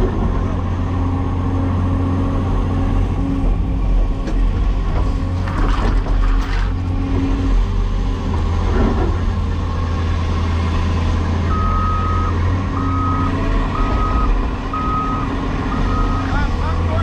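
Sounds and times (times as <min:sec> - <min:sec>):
diesel engine running: 0:00.0 - 0:17.0
backup alarm beeping: 0:11.5 - 0:16.3.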